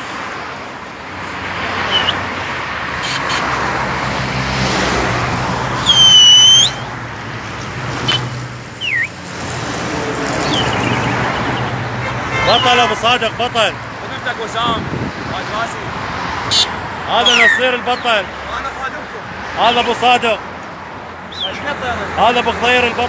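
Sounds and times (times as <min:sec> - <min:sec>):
street traffic engine hum: 0:00.0 - 0:23.0
loud high whistle: 0:01.9 - 0:02.2, 0:05.8 - 0:06.9, 0:08.8 - 0:09.2, 0:16.5 - 0:17.7.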